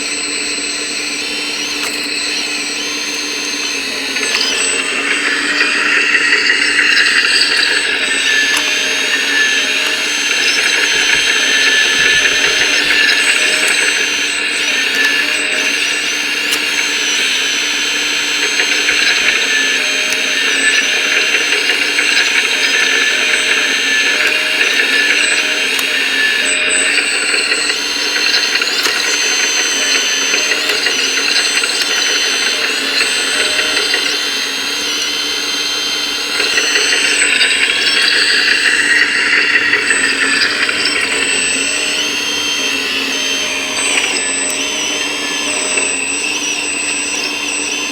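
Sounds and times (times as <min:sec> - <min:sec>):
electric motors and gears whining: 0:00.0 - 0:47.9.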